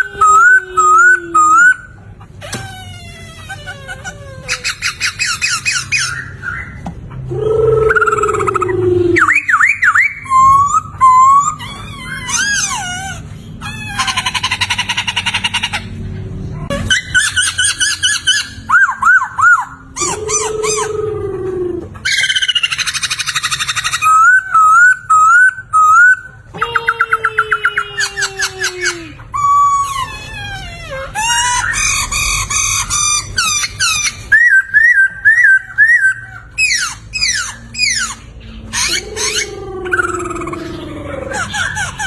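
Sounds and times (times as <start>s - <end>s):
bird singing whistled phrases: 7.7s - 11.6s, 33.5s - 38.1s.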